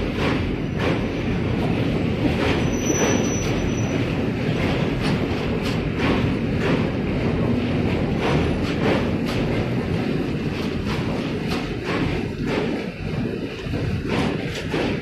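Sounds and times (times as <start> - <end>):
train coaches rolling rumble: 0.0 - 15.0
wheel clacks over rail joints: 0.0 - 15.0.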